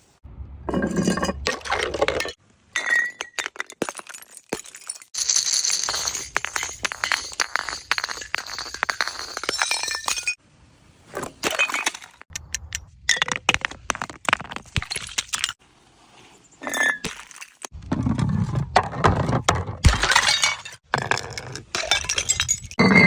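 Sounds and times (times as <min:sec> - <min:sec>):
glass bottles smashing: 0:00.7 - 0:10.4, 0:19.8 - 0:23.0.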